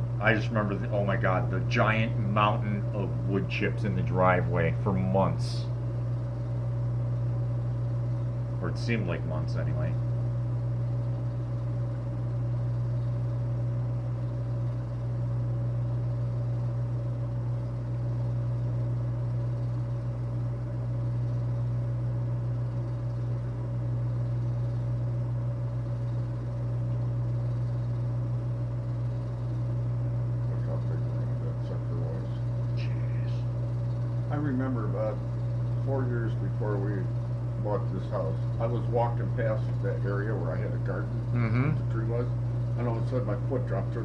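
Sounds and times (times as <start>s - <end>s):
faint high whine: 0.0s - 44.0s
steady low hum: 0.0s - 44.0s.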